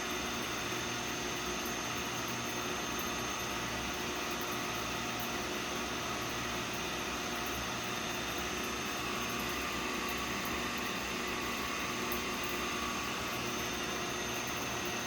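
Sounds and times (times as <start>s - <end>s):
coffee roaster motor and fan hum: 0.0s - 15.0s.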